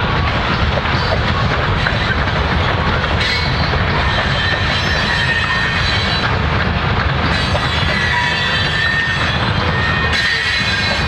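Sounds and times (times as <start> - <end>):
steel wheels rumbling on rail: 0.0 - 11.0
high-pitched wheel squeal: 3.2 - 6.3, 7.3 - 11.0.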